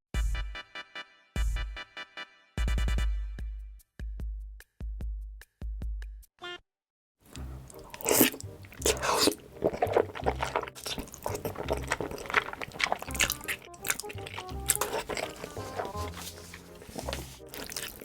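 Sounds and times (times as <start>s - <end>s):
chewing and biting noodles: 7.3s - 18.0s.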